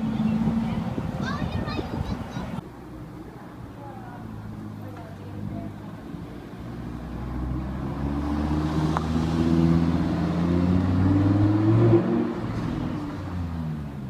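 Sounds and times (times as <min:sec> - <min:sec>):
car engine passing by: 0:04.3 - 0:14.0.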